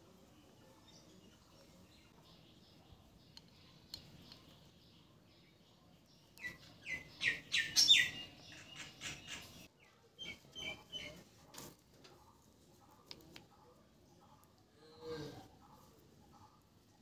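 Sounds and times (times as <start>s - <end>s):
bird chirping: 0.1s - 11.3s.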